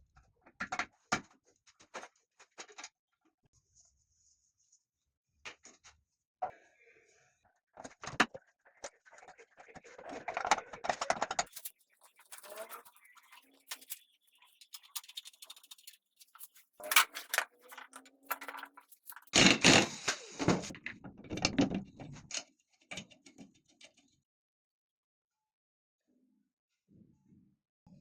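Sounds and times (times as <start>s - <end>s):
metal parts clicking and knocking: 11.5s - 19.7s
scraping: 11.5s - 19.8s.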